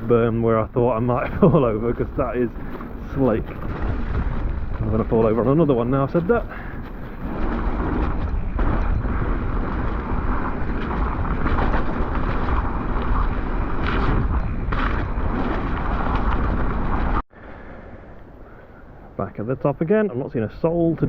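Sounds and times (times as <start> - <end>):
bike rattling: 0.0 - 17.2
bike tyre noise: 0.0 - 19.1
wind rush on microphone: 0.0 - 19.2.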